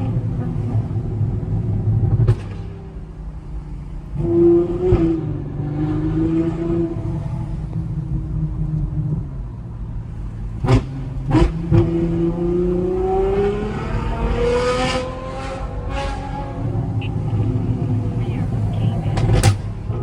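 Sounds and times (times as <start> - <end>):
car exhaust running: 9.6 - 20.0.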